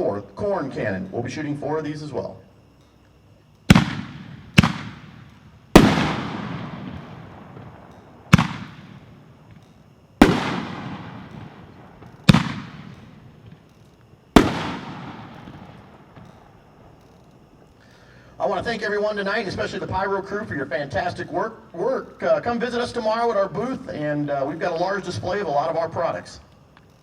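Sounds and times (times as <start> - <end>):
firework bangs with echo: 3.7 - 13.8, 14.4 - 16.8.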